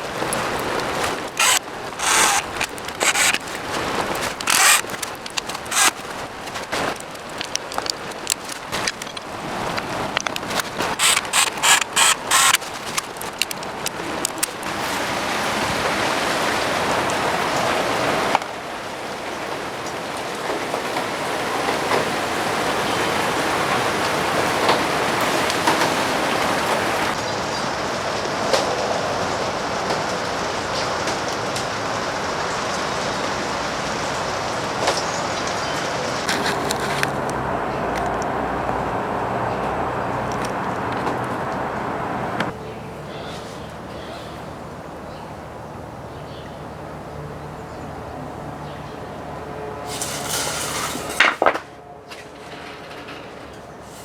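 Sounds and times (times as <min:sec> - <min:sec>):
ratchet-like mechanical clicking: 0:01.4 - 0:03.6, 0:04.2 - 0:06.0, 0:10.9 - 0:13.7.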